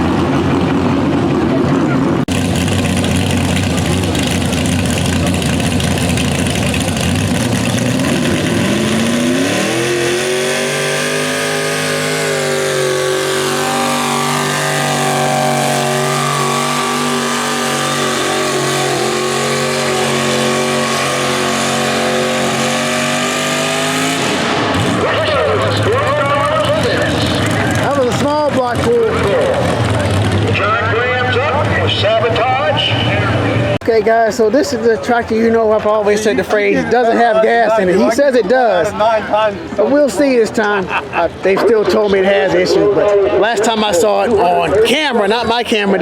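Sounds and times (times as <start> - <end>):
tractor engine revving: 0.0 - 33.8.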